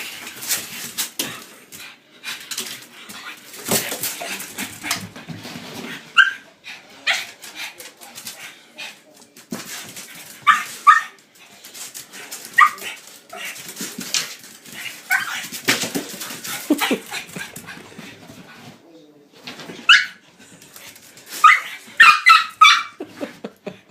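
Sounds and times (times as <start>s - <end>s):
dog yelping and barking: 6.2s - 6.4s, 19.9s - 20.2s, 21.4s - 23.0s.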